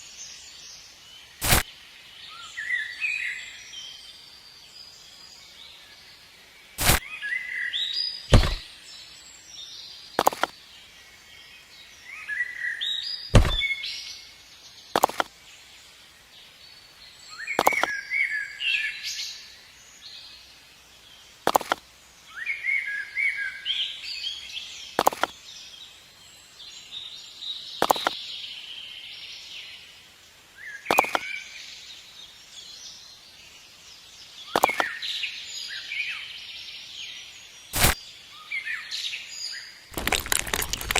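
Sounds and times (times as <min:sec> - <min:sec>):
birds chirping: 0:06.8 - 0:15.7, 0:16.4 - 0:19.5, 0:26.7 - 0:29.8, 0:30.6 - 0:33.3, 0:34.0 - 0:40.9
sharp single knocks: 0:08.3 - 0:08.7, 0:13.3 - 0:13.6.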